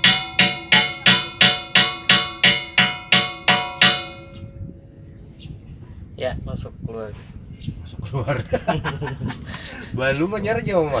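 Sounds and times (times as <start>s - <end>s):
hammer blows on metal: 0.0s - 4.8s.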